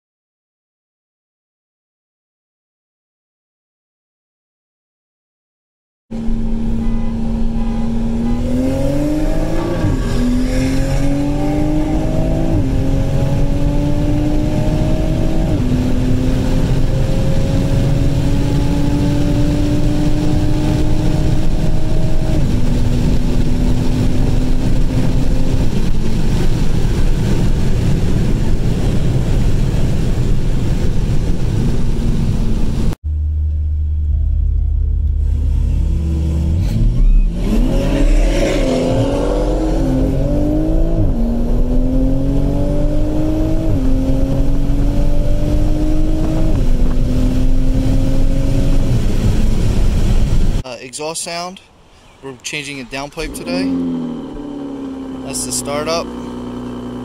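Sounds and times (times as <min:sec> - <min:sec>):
car engine accelerating: 0:06.1 - 0:50.6, 0:52.3 - 0:57.0
car engine idling: 0:22.4 - 0:37.3.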